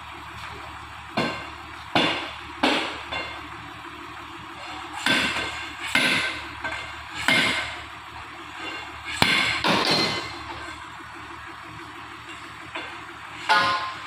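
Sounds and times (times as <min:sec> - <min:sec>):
steady workshop hum: 0:00.0 - 0:14.0
heavy steel clanking: 0:08.5 - 0:10.9, 0:12.2 - 0:14.0.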